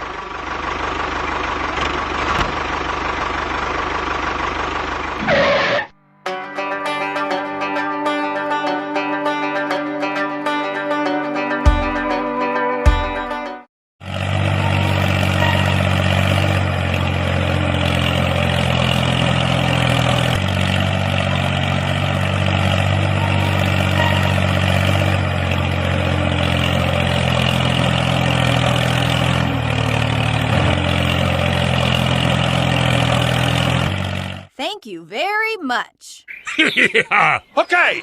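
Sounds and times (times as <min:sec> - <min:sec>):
engine idling: 0:00.0 - 0:05.8, 0:14.0 - 0:34.5.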